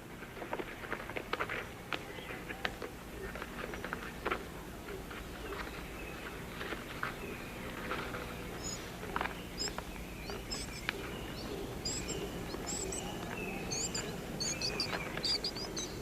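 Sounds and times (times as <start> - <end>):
low rainforest background: 0.0 - 16.0
small rustles and clicks: 0.1 - 11.1
bird chirping: 5.4 - 16.0.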